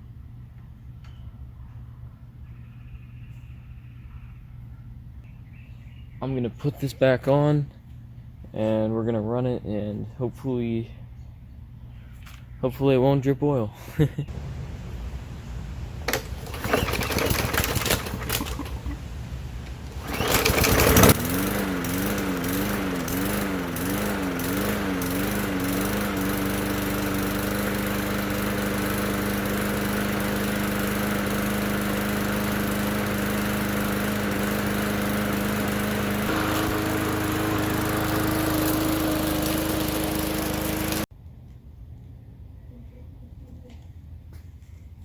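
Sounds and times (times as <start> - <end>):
lawn mower engine running: 14.3 - 41.1.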